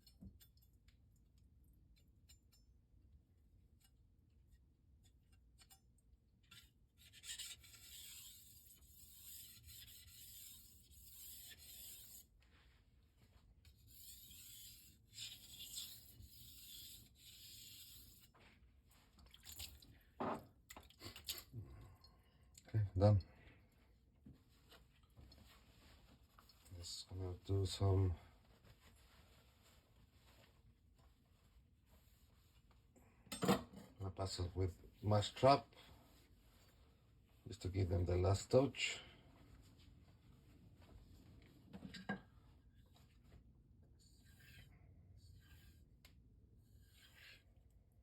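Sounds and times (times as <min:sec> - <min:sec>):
knife scraping on whetstone: 0:06.5 - 0:12.3, 0:13.7 - 0:18.4, 0:44.0 - 0:45.9, 0:46.6 - 0:47.6.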